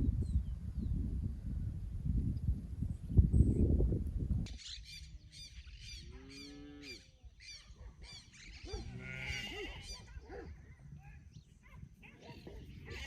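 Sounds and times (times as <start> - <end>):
birds chirping: 4.5 - 13.0
cow mooing: 8.8 - 9.8.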